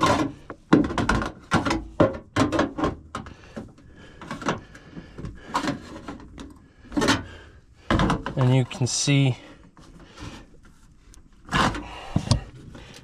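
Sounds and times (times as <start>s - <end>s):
sheet metal knocks and clatters: 0.0s - 3.0s.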